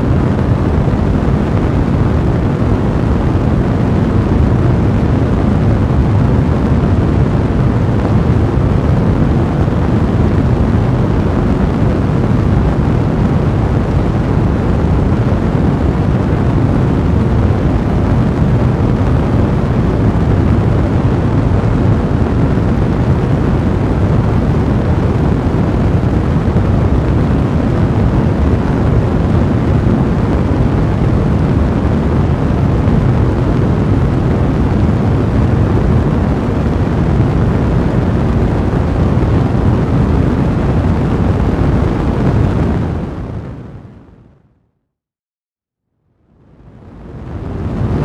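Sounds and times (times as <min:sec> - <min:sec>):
fire blazing low rumble: 0:00.0 - 0:44.2, 0:46.4 - 0:48.0.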